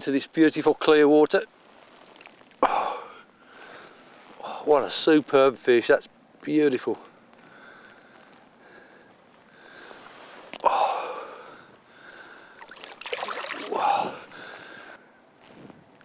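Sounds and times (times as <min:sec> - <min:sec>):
water splashing: 0:12.6 - 0:14.3.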